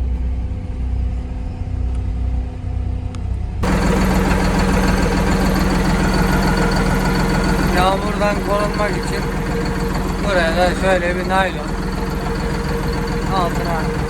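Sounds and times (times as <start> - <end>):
engine low rumble: 0.0 - 14.0
engine idling: 3.6 - 14.0.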